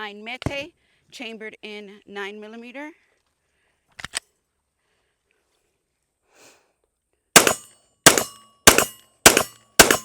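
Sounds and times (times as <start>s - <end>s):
pistol shots: 7.4s - 10.0s.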